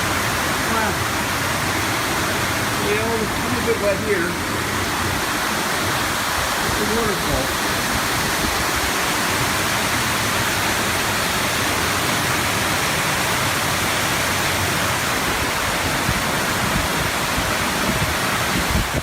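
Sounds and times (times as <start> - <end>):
water rushing: 0.0 - 19.0.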